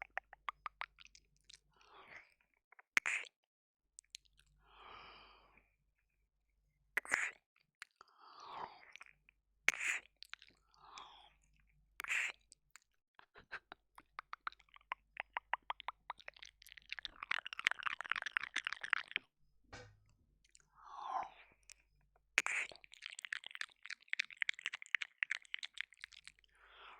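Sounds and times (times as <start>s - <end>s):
wet mouth smacks and clicks: 0.0s - 1.7s, 3.0s - 3.3s, 4.0s - 4.4s, 7.0s - 8.0s, 9.7s - 10.6s, 12.0s - 19.3s, 22.4s - 26.5s
breathy mouth sounds: 0.0s - 3.4s, 7.0s - 19.3s, 22.4s - 26.9s.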